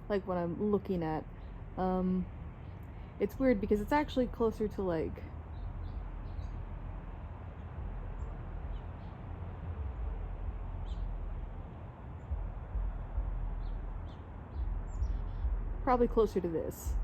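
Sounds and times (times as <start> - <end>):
steady low rumble: 0.0 - 17.0
faint bird chirps: 12.1 - 16.3.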